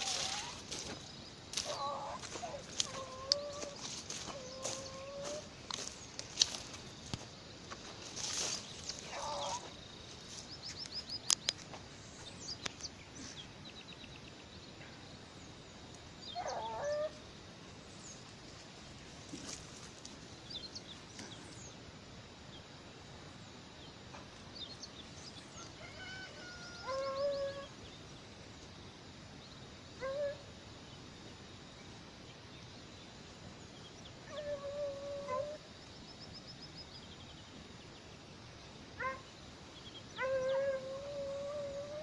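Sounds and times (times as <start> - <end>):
small birds chirping: 0.0 - 17.2.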